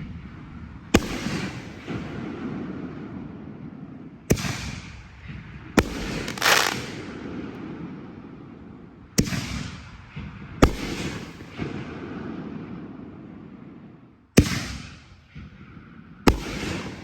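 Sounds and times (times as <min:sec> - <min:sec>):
fireworks booming: 0:00.0 - 0:08.6, 0:09.2 - 0:17.0
fireworks popping: 0:05.8 - 0:07.0.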